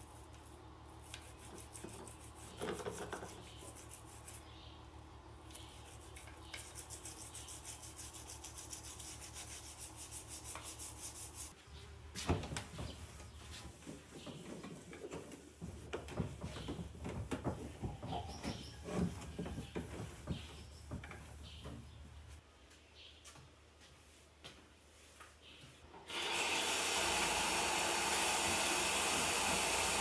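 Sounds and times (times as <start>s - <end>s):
rapid scrubbing strokes: 5.8s - 11.6s.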